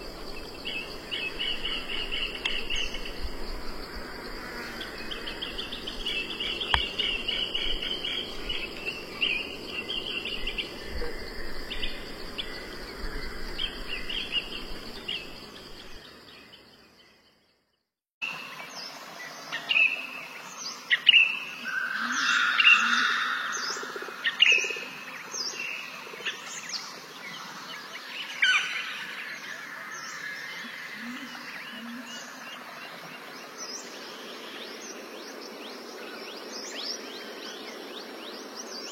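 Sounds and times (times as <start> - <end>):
high insect drone: 0.0 - 16.6
wild birds chirping: 0.0 - 17.6, 18.2 - 38.9.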